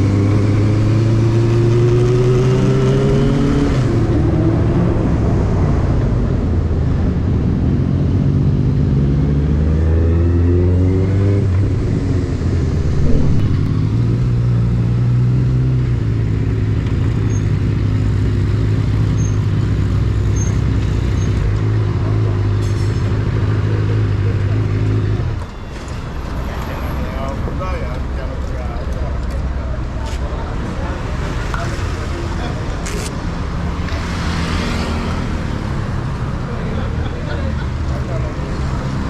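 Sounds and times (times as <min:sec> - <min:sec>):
motorcycle engine revving: 0:08.6 - 0:25.2, 0:30.3 - 0:36.5.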